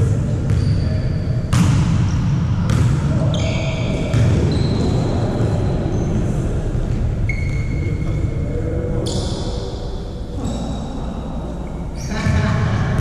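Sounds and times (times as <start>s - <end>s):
gym and crowd rumble: 0.0s - 13.0s
shoes squeaking on court: 0.5s - 1.6s, 3.3s - 5.2s, 7.2s - 8.3s.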